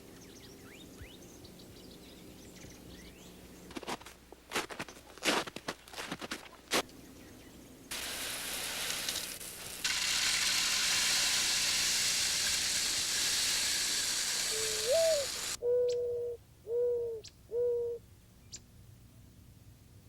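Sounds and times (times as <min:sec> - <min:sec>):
steady rushing hiss: 0:07.8 - 0:15.6
dove cooing: 0:14.5 - 0:18.0.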